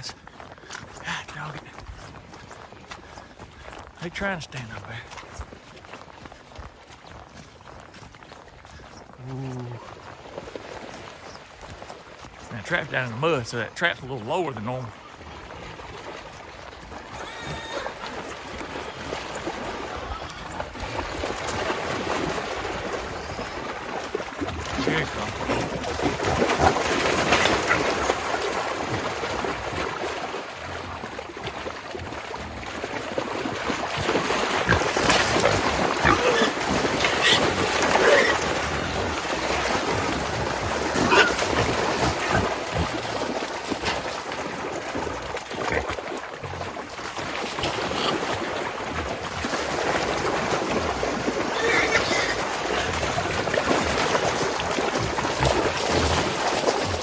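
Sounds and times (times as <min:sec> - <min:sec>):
hogs splashing through mud: 0:00.0 - 0:57.0
hog squeals: 0:17.2 - 0:18.0, 0:41.0 - 0:41.4.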